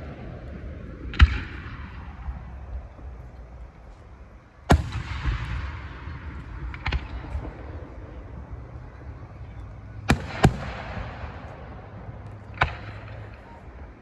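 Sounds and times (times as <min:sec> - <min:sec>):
firework bangs with rumbling echo: 0:00.0 - 0:03.5, 0:04.6 - 0:13.8
small firework pops: 0:01.0 - 0:02.4, 0:03.3 - 0:08.3, 0:09.6 - 0:13.9.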